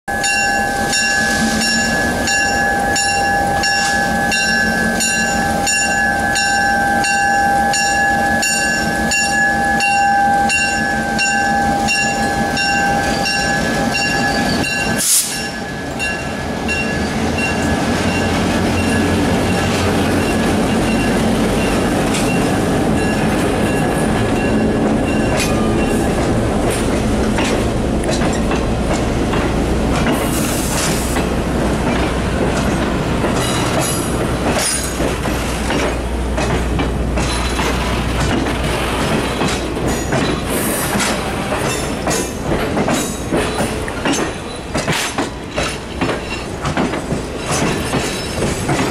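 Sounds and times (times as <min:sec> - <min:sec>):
pulsing ringing tone: 0:00.1 - 0:19.1
diesel locomotive passing: 0:00.1 - 0:48.9
wheels rumbling and clicking: 0:16.8 - 0:48.9.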